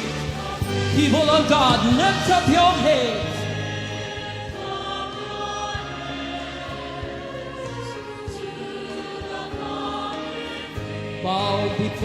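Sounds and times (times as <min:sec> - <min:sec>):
choir singing sustained chords: 0:00.0 - 0:12.0.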